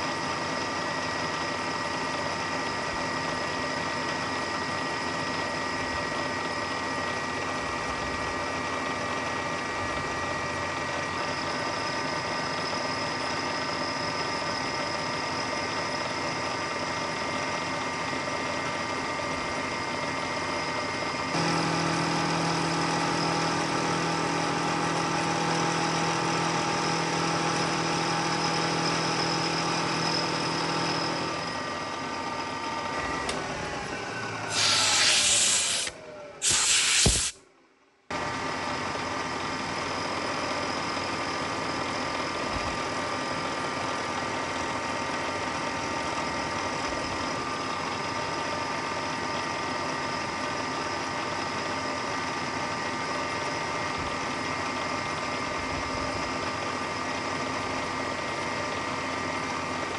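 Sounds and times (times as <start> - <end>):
milling machine running: 0.0 - 37.4.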